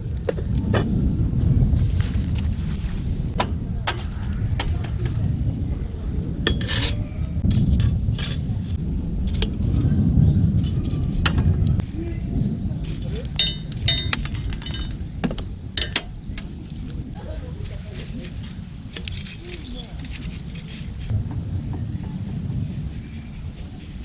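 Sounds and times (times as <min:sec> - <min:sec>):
low rumble: 0:00.0 - 0:24.0
metal cookware clinking: 0:13.4 - 0:15.0, 0:15.8 - 0:16.1.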